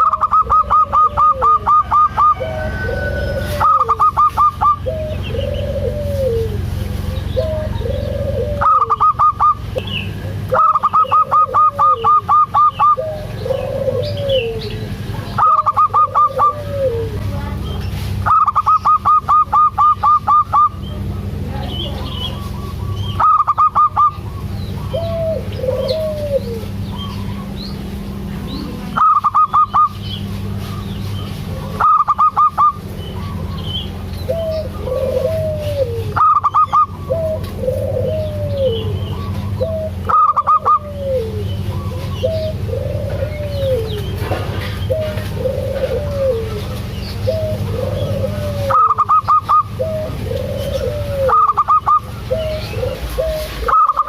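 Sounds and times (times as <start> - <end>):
dove cooing: 0.0 - 54.0
steady low hum: 0.0 - 54.0.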